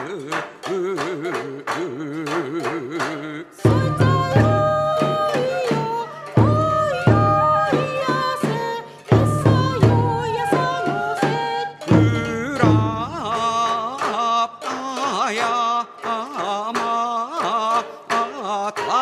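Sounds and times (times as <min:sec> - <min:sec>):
wavering held vocal melody: 0:00.0 - 0:19.0
heavy drum strokes: 0:03.7 - 0:13.4.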